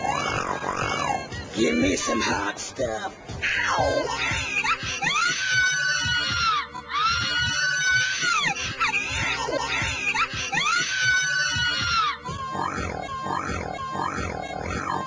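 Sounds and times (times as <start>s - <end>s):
backing music: 0.0s - 15.0s
person shrieking: 3.4s - 15.0s.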